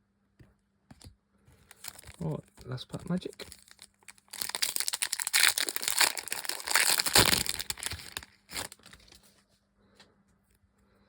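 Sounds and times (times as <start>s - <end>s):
wrapper torn and crinkled: 1.7s - 9.3s.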